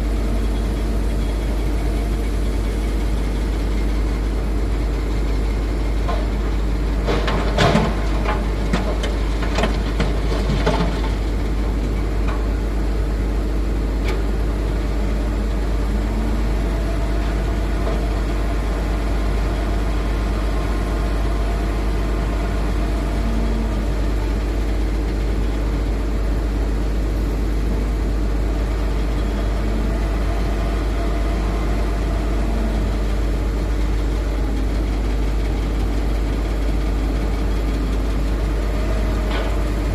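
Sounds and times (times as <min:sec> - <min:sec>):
dump truck idling: 0:00.0 - 0:39.9
excavator diesel engine: 0:00.0 - 0:39.9
knocks and clatters: 0:07.0 - 0:11.2.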